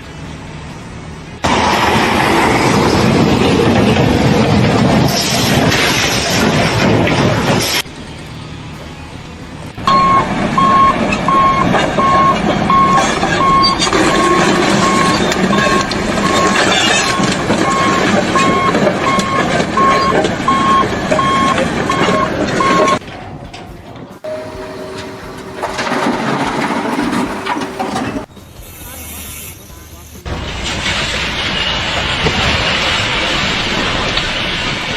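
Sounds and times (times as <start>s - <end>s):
engine and machinery noise: 0.0s - 34.9s
backup alarm beeping: 9.8s - 23.0s, 24.2s - 28.3s.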